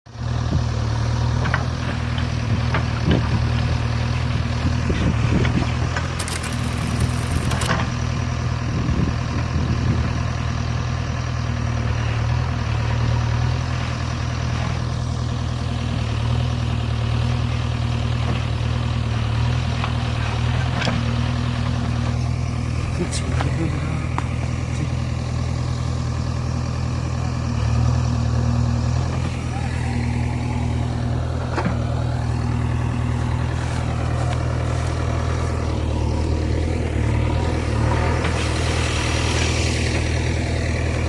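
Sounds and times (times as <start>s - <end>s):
clicks: 6.1s - 7.8s.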